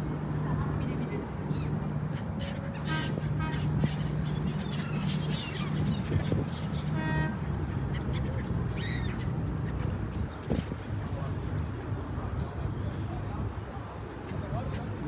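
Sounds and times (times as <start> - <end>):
seagulls calling: 1.5 - 11.0.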